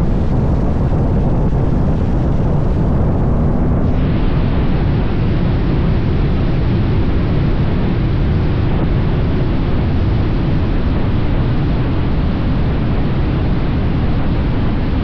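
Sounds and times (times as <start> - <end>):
motorcycle road noise: 0.0 - 4.8
wind rushing: 0.0 - 5.1.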